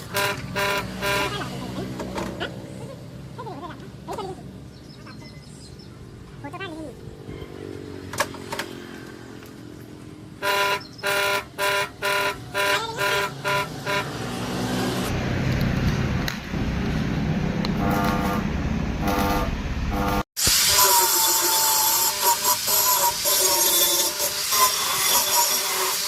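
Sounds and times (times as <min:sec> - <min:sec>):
vehicle horn honking: 0:00.0 - 0:01.8, 0:10.4 - 0:14.5, 0:17.8 - 0:20.2
steady rumble: 0:15.1 - 0:20.2.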